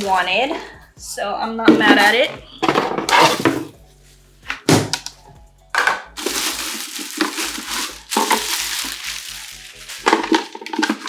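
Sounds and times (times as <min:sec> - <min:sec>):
pulsing background music: 0:00.0 - 0:11.0
packaging crumpling and crackling: 0:06.2 - 0:11.0.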